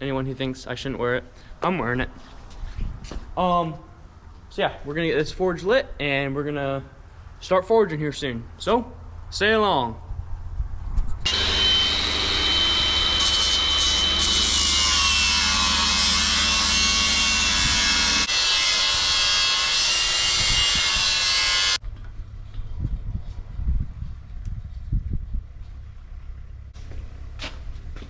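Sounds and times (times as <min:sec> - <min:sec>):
forge air rushing with whine: 0:11.3 - 0:21.8.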